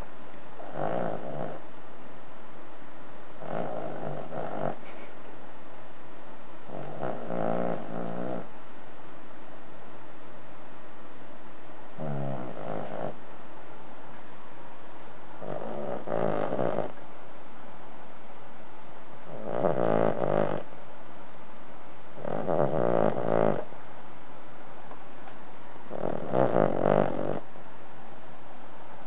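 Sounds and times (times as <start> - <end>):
dog snoring: 0.6 - 1.7, 3.4 - 5.0, 6.7 - 8.5, 12.0 - 13.2, 15.4 - 17.0, 19.3 - 20.7, 22.2 - 23.7, 25.8 - 27.5.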